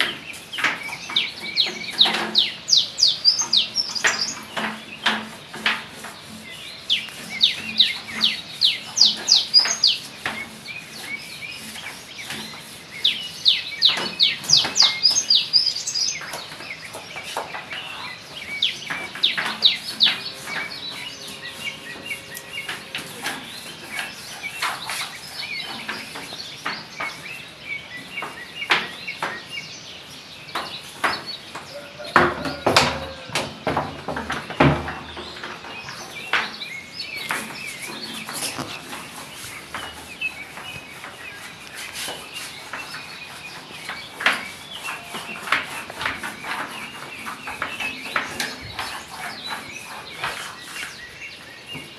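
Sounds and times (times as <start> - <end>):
birds chirping: 0.0 - 51.9.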